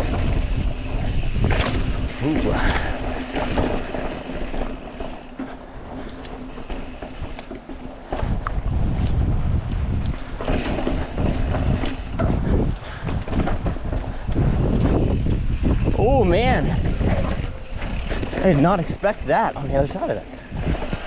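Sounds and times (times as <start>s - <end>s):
bike rolling on rocky trail: 0.0s - 21.0s
wind buffeting microphone: 0.0s - 21.0s.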